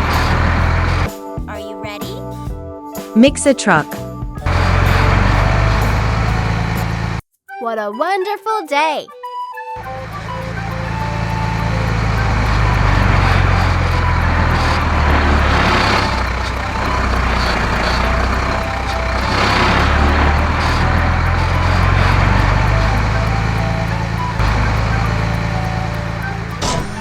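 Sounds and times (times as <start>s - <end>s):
truck engine revving: 0.0s - 1.1s, 4.4s - 7.2s, 9.8s - 27.0s.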